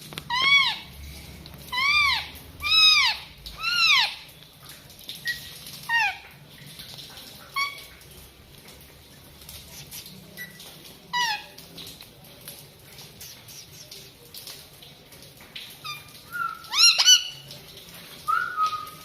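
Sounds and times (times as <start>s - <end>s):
parrot squawking: 0.3s - 0.9s, 1.7s - 4.2s, 5.2s - 6.2s, 10.4s - 11.5s, 15.8s - 17.4s.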